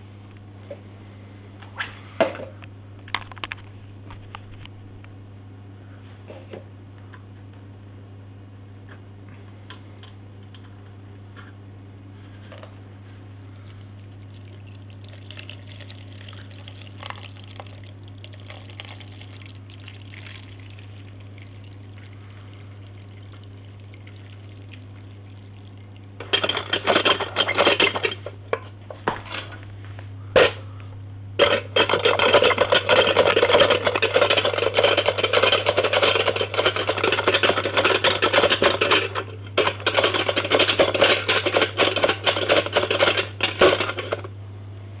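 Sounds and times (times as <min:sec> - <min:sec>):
toy washing machine rattling: 0:26.2 - 0:28.4, 0:31.4 - 0:44.3.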